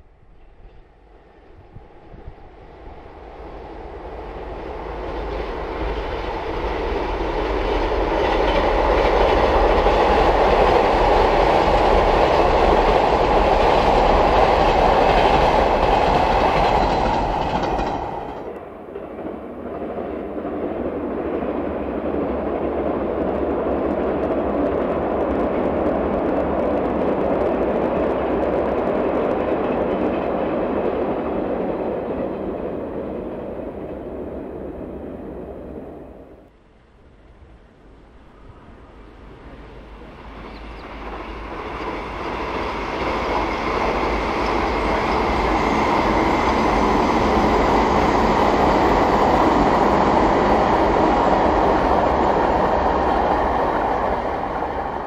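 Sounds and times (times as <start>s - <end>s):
train wheel clatter on bridge: 4.9s - 19.2s.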